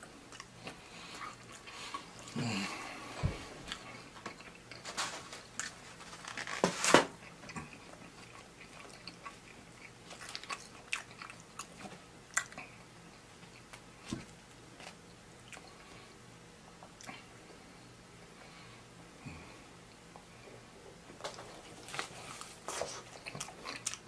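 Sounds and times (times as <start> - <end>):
man chewing crunchy fries: 0.0 - 16.0, 21.2 - 24.0.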